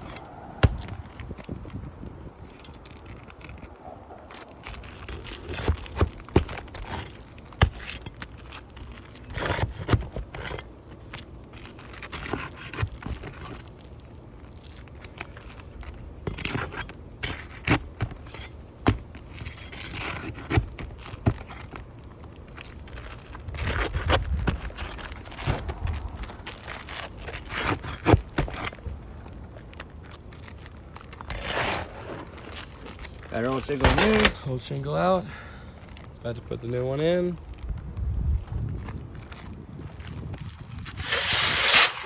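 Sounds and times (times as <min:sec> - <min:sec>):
metal tool scraping shingles: 0:04.3 - 0:11.0, 0:11.6 - 0:13.9, 0:16.2 - 0:21.9, 0:22.6 - 0:29.0, 0:31.0 - 0:34.7, 0:40.8 - 0:42.0.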